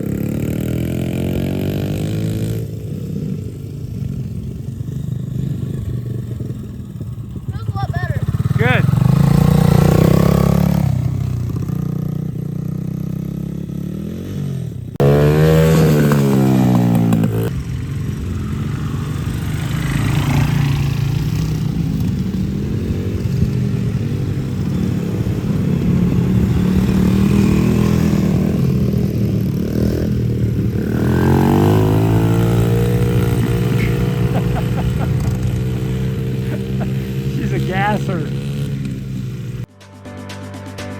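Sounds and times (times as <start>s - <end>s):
dirt bike engine revving: 0.0s - 39.7s.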